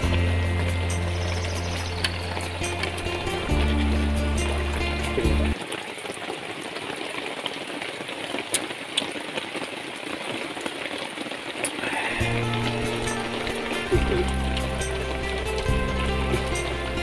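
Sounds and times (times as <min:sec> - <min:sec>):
background music: 0:00.0 - 0:05.6, 0:11.8 - 0:17.0
water hissing: 0:00.0 - 0:05.6, 0:11.8 - 0:17.0.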